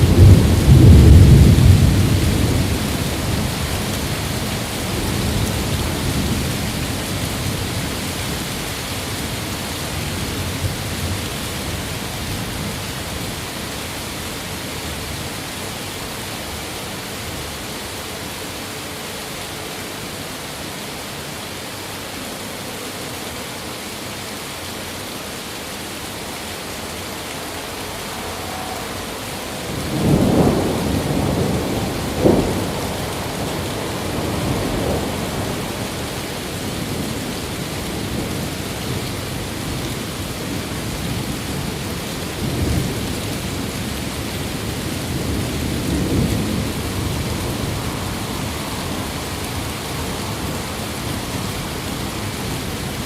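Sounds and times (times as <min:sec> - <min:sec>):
thunder rolling: 0:00.0 - 0:06.7, 0:27.9 - 0:36.2, 0:44.5 - 0:52.8
rain hissing: 0:00.0 - 0:53.0.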